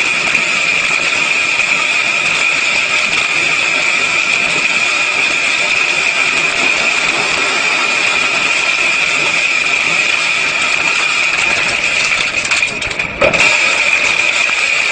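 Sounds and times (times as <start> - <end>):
corn processing machine running: 0.0 - 14.9.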